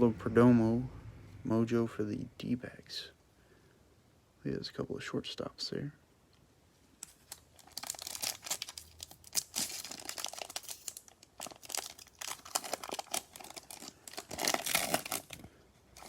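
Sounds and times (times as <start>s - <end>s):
card pack wrapper crinkling: 7.0s - 16.0s.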